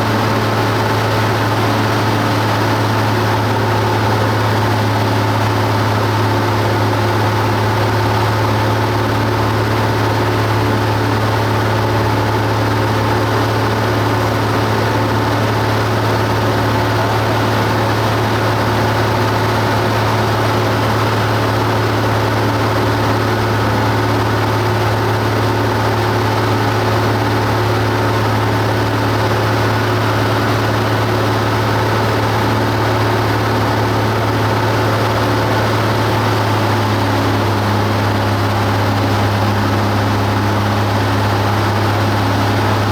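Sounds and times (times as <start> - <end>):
airplane engine drone: 0.0 - 42.9.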